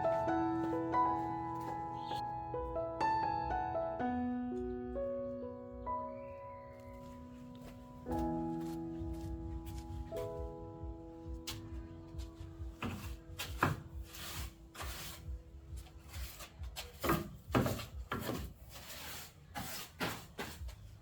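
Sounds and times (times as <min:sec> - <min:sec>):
held music notes: 0:00.0 - 0:16.8
scraping and rubbing strokes: 0:12.8 - 0:21.0.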